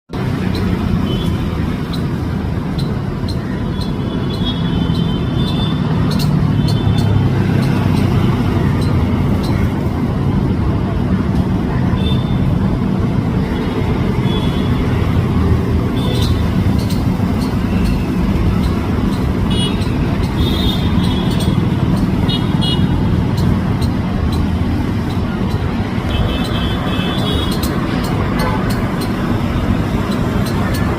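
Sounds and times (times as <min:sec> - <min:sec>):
road traffic rumble: 0:00.1 - 0:30.9
high chirping notes: 0:15.2 - 0:30.9.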